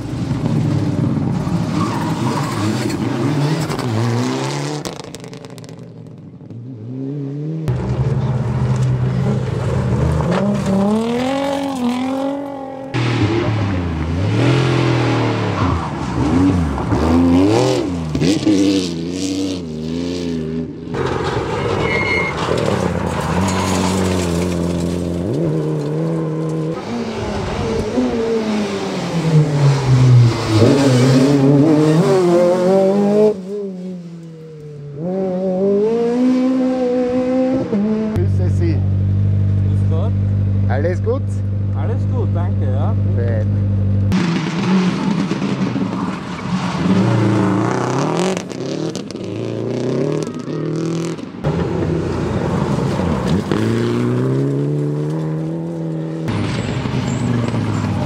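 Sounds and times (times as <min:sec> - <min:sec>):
rally car engines revving: 0:00.0 - 0:58.0
car sliding on gravel: 0:21.0 - 0:32.1, 0:51.5 - 0:58.0.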